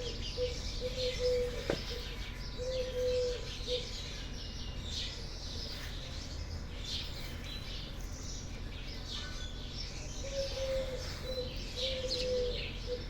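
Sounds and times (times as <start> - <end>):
low steady coo: 0.0 - 3.9, 10.3 - 13.0
small birds chirping: 0.0 - 13.0.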